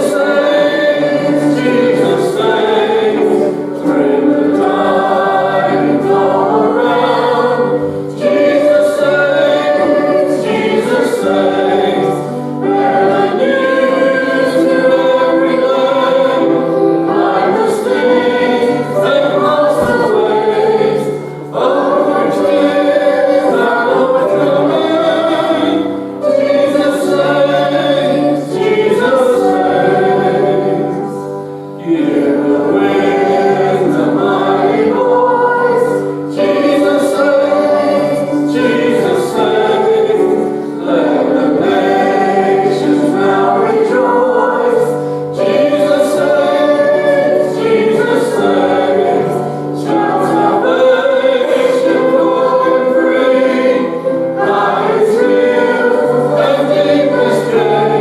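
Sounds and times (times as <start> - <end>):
choir singing a hymn: 0.0 - 58.0
singers breathing: 45.0 - 45.3.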